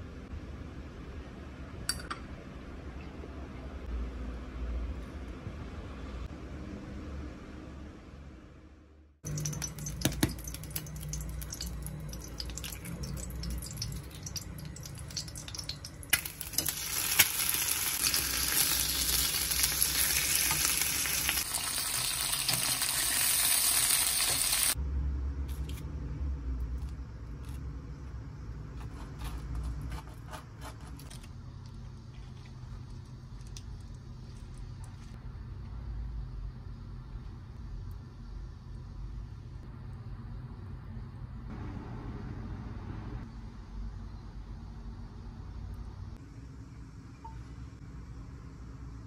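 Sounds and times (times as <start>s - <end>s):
bacon and egg sizzling in a pan: 9.3s - 24.8s
knife spreading butter on toast: 28.8s - 31.3s.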